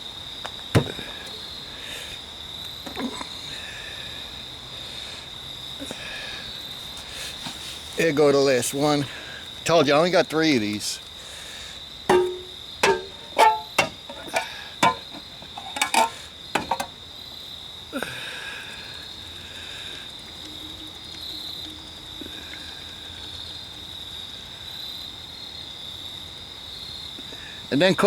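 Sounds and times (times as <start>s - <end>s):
crickets chirping: 0.0s - 28.0s
sharp clinks and knocks: 12.1s - 16.9s.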